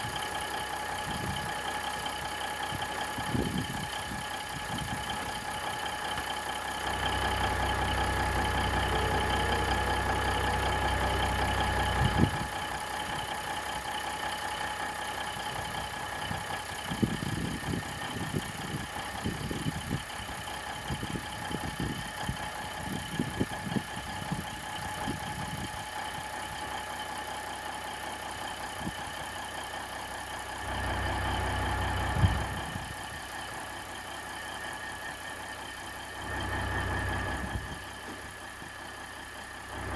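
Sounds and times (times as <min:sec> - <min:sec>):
diesel engine idling: 0:00.0 - 0:39.9
deep rumble: 0:06.8 - 0:13.4
steady whine: 0:06.9 - 0:12.8.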